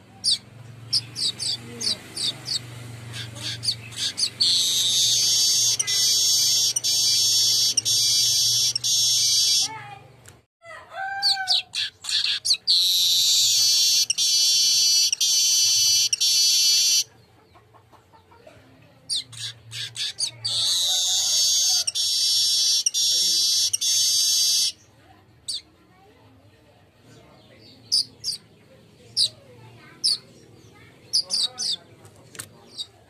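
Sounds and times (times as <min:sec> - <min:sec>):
bird chatter: 0:00.0 - 0:10.3, 0:11.5 - 0:18.4, 0:19.1 - 0:24.9, 0:27.0 - 0:33.0
weaver bird singing: 0:00.2 - 0:09.7, 0:11.8 - 0:17.4, 0:19.1 - 0:24.9, 0:27.4 - 0:29.4, 0:30.0 - 0:31.9.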